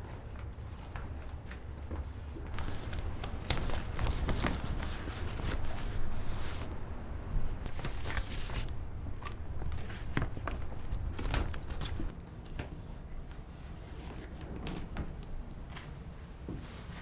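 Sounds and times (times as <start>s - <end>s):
rustling: 2.4s - 12.2s.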